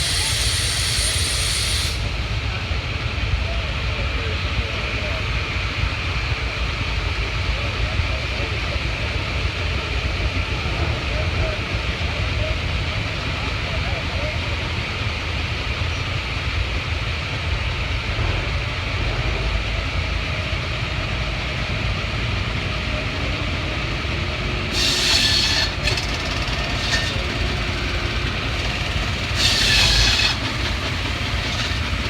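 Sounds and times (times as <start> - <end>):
steam hissing bursts: 0.0 - 2.4, 24.7 - 32.0
steam engine rumbling: 0.0 - 32.0.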